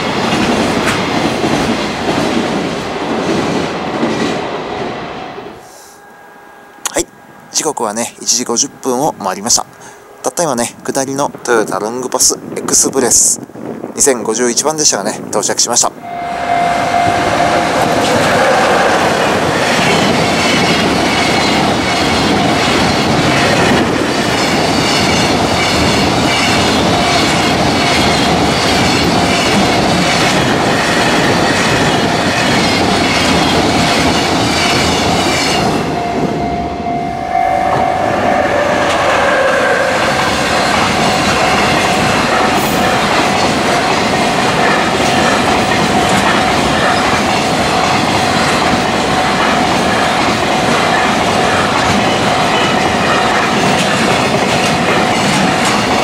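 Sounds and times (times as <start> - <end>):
level-crossing bell ringing: 16.0 - 20.4, 35.7 - 41.8
freight train wheels clattering: 17.6 - 36.5, 37.6 - 56.0.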